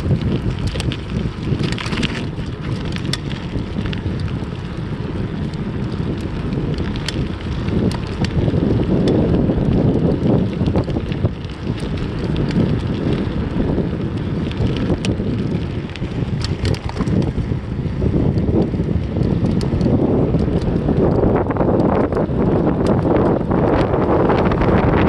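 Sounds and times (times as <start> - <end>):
wind buffeting microphone: 0.0 - 25.0
light clicks and rattles: 0.4 - 4.3, 14.4 - 17.4.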